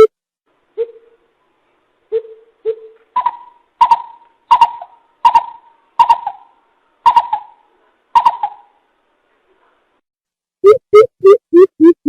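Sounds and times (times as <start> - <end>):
bird deep hooting calls: 2.1 - 7.6, 8.2 - 8.8.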